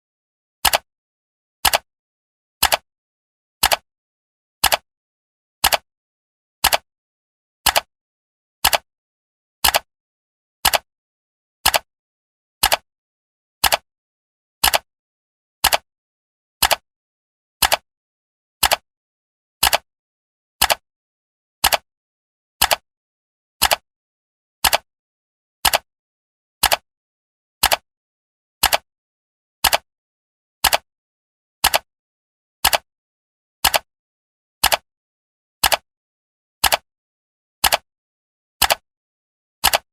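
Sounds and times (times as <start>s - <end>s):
clock ticking: 12.6s - 12.8s, 13.6s - 13.8s, 19.6s - 19.8s, 21.6s - 21.8s, 24.6s - 24.8s, 26.6s - 26.8s, 27.6s - 27.8s, 28.6s - 28.8s, 29.6s - 29.8s, 30.6s - 30.8s, 31.6s - 31.9s, 32.6s - 32.8s, 33.6s - 33.9s, 34.6s - 34.8s, 35.6s - 35.8s, 37.6s - 37.8s.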